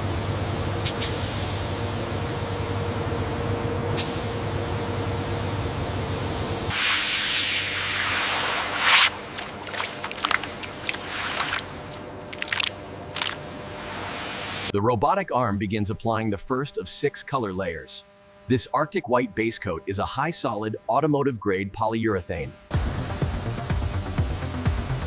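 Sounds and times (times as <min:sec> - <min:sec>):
low machine hum: 0:00.0 - 0:23.5
pressurised spray hissing: 0:00.8 - 0:02.6, 0:04.0 - 0:05.0, 0:06.5 - 0:12.1, 0:22.7 - 0:25.0.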